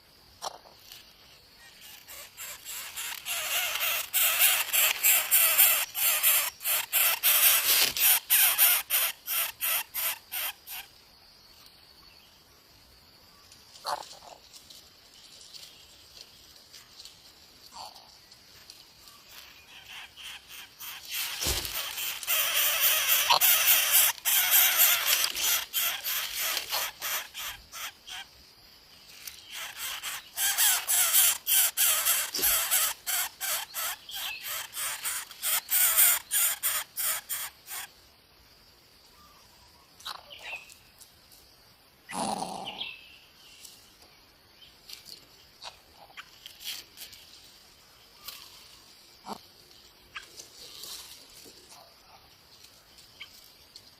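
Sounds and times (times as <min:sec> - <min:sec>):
harsh raspy bird calls: 0:01.6 - 0:10.9, 0:19.4 - 0:28.3, 0:29.4 - 0:37.9.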